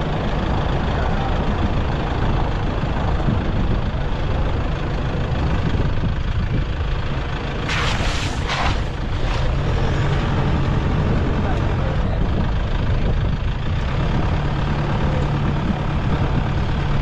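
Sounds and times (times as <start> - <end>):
vehicle engine and road rumble: 0.0 - 17.0
short hissing scrapes: 7.7 - 9.0.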